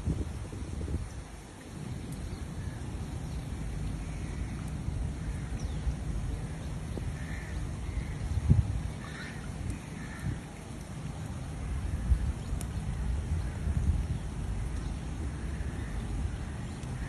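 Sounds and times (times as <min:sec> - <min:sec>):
crows cawing: 0:07.2 - 0:08.2, 0:09.0 - 0:10.4.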